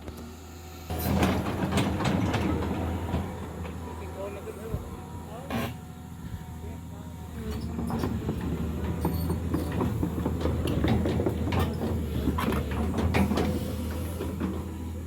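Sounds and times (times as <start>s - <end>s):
diesel engine running: 0.0s - 15.0s
knocks and clanks: 0.9s - 3.9s, 7.5s - 14.8s.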